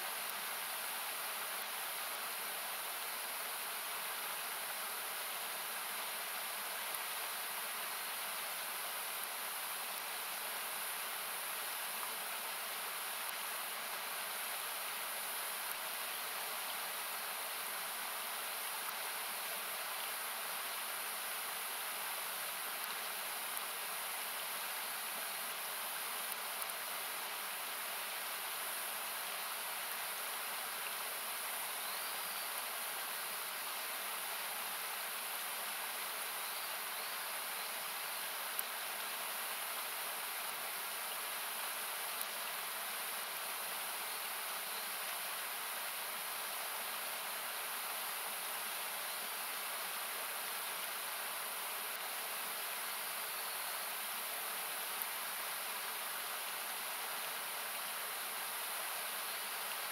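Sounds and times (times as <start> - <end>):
river rushing: 0.0 - 59.9
campfire crackles: 20.7 - 27.4.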